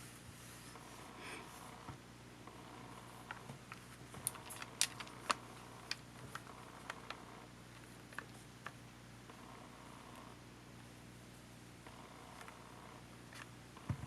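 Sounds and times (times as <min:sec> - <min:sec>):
small tools clicking and tapping: 0:03.7 - 0:07.1.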